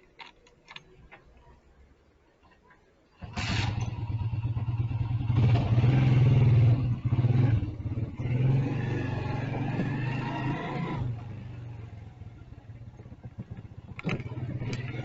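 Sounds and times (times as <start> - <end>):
motorcycle engine revving: 3.2 - 15.0.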